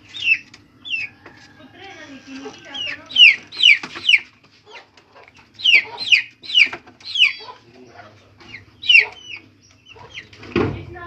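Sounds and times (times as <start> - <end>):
chickens calling: 0.0 - 11.0.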